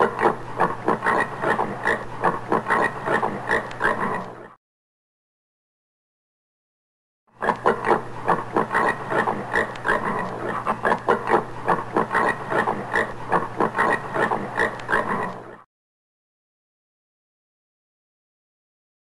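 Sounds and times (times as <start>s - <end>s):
warthog grunting: 0.0s - 4.6s, 7.4s - 15.6s.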